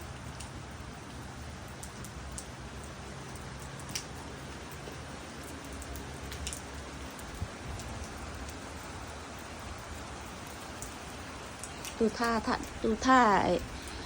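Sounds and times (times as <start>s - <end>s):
light rain falling: 0.0s - 14.0s
raindrop ticks: 0.0s - 14.0s.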